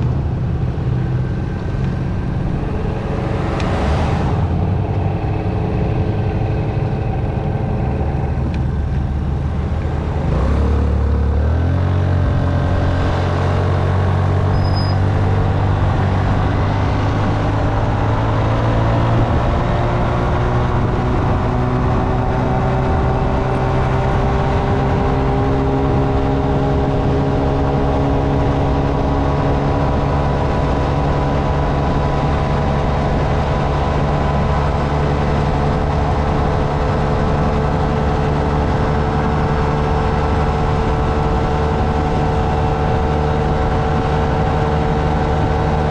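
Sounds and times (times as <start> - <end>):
low rumble: 0.0 - 23.7
motorcycle engine accelerating: 0.0 - 45.9.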